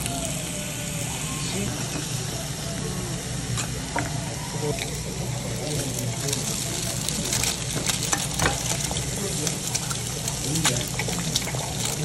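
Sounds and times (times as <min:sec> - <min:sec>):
food sizzling on a grill: 0:00.0 - 0:12.0
fat spattering and popping: 0:04.9 - 0:12.0.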